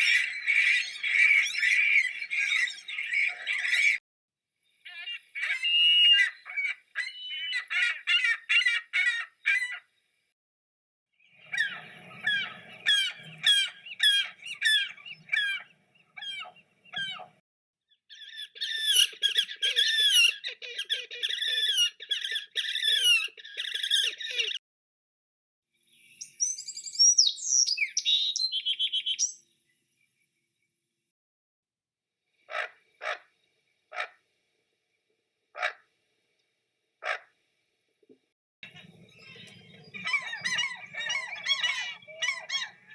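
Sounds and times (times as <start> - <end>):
bird chirping: 0.0 - 4.0, 4.7 - 8.5, 11.2 - 24.6, 25.8 - 30.7, 38.6 - 42.9.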